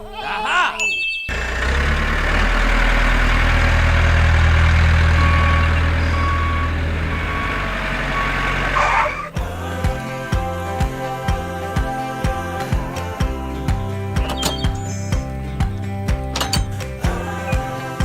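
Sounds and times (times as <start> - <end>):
large vehicle engine rumbling: 1.3 - 11.2, 12.7 - 18.0
reversing alarm beeps: 4.9 - 9.4.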